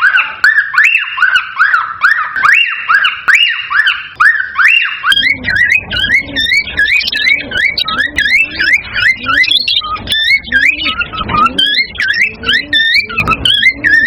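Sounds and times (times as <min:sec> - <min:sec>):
cockatiel whistling: 0:00.0 - 0:14.0.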